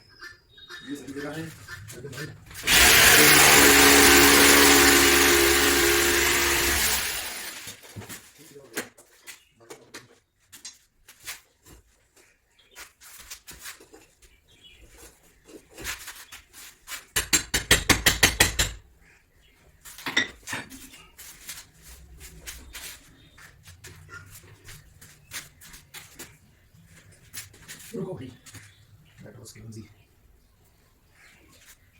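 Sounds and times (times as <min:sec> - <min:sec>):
fast loud rattling clicks: 0:02.6 - 0:07.8
hard objects clicking and knocking: 0:17.1 - 0:18.8.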